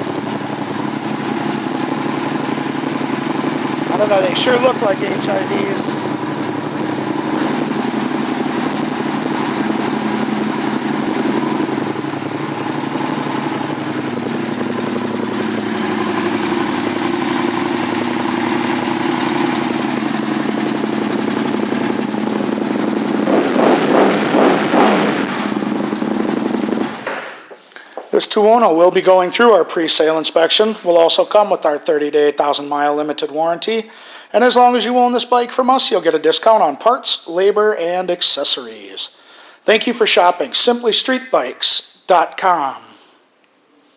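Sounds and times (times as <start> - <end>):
motorcycle engine idling and revving: 0.0 - 27.2.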